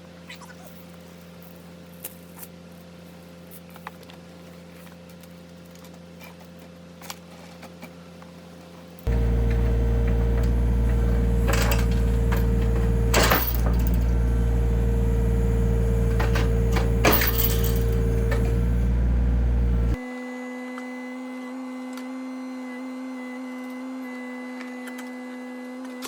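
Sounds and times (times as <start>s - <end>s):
excavator diesel engine: 9.1s - 20.0s
thin steady hum: 9.1s - 20.0s.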